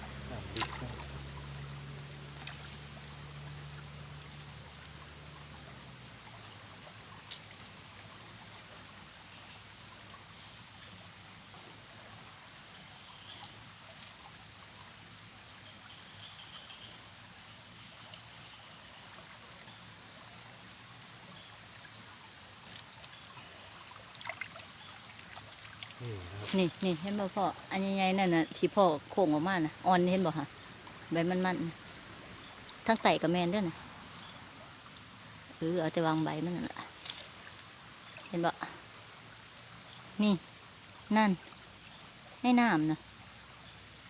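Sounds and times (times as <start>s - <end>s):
faint trickling water: 0.0s - 43.9s
insect chirring: 0.0s - 44.0s
small clicks or splashes: 0.5s - 1.2s, 2.4s - 2.9s, 23.9s - 26.0s, 36.9s - 37.5s.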